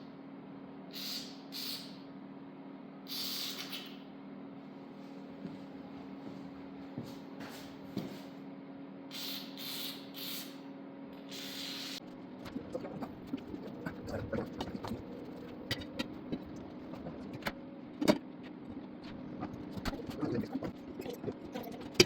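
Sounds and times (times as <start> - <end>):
steady hum: 0.0 - 22.0
short hissing bursts: 0.9 - 2.0, 3.1 - 4.0, 9.1 - 10.6, 11.3 - 12.0.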